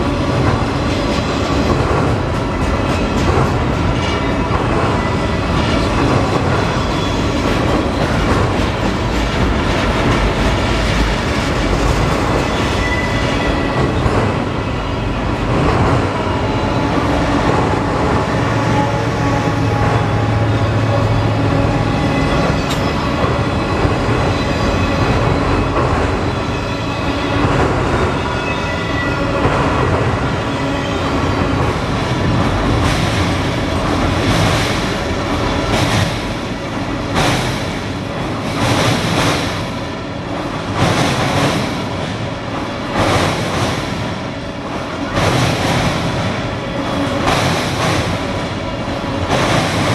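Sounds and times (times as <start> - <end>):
train wheels clattering over track: 0.0 - 49.9
train wheel squeal: 0.8 - 9.0, 9.8 - 15.4, 16.0 - 31.9.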